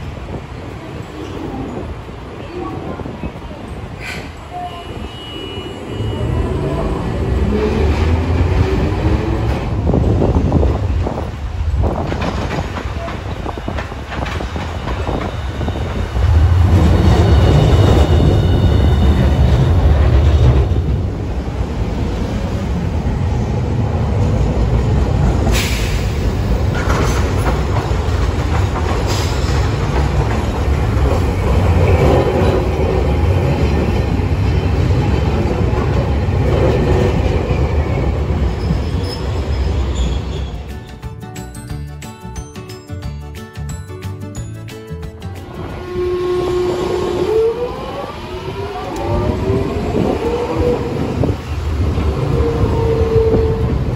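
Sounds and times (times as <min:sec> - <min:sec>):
streetcar wheels and motors rumbling: 0:00.0 - 0:53.9
high wheel squeal: 0:16.8 - 0:20.8.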